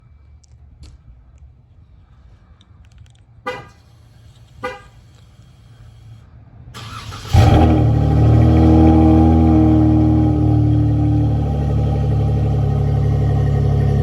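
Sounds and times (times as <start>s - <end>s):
car horn chirps: 3.4s - 5.2s
engine starter cranking: 6.8s - 7.6s
car engine running loudly: 7.0s - 14.0s.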